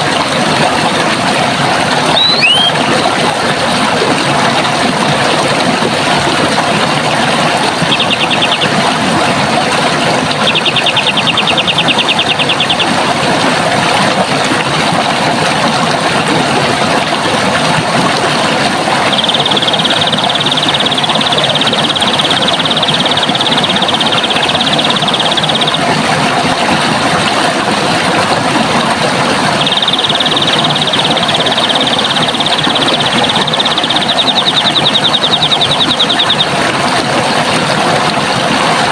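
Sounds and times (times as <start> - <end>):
water rushing: 0.0 - 38.9
bird trilling: 2.1 - 2.9, 7.8 - 8.8, 10.3 - 13.0, 19.1 - 25.8, 29.6 - 36.5.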